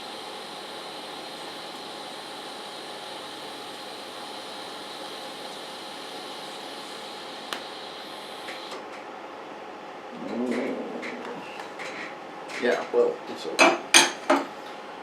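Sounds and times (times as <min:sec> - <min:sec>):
welding arc hissing: 0:00.0 - 0:08.8.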